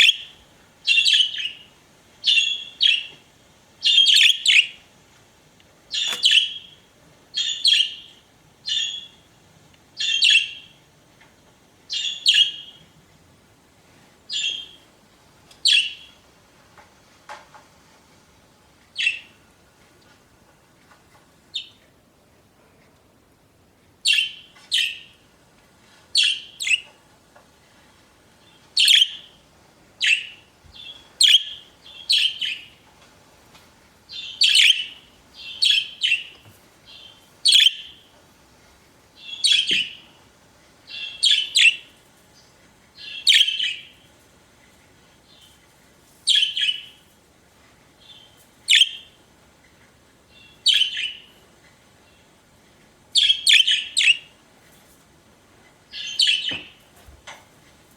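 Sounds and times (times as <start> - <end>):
budgerigars chirping: 0.0 - 3.1, 3.8 - 4.8, 5.9 - 6.8, 7.4 - 8.1, 8.7 - 9.2, 10.0 - 10.8, 11.9 - 12.8, 14.3 - 14.8, 15.7 - 16.1, 24.1 - 25.1, 26.2 - 26.9, 28.8 - 29.3, 30.0 - 32.7, 34.1 - 38.0, 39.2 - 40.1, 40.9 - 41.9, 43.0 - 43.9, 48.0 - 49.2, 50.4 - 51.3, 53.2 - 54.3, 55.9 - 56.7.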